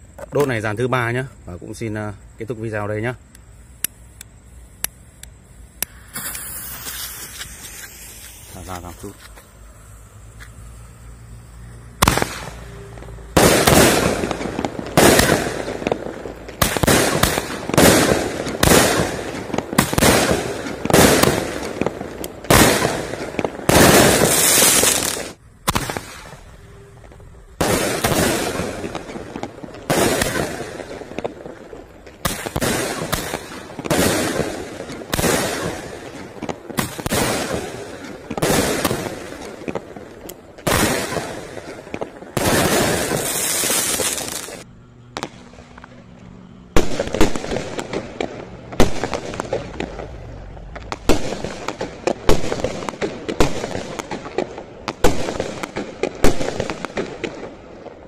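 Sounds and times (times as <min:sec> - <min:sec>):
fireworks launches and bursts: 0:00.0 - 0:58.0
hissing firework burst: 0:02.8 - 0:45.9, 0:46.7 - 0:58.0.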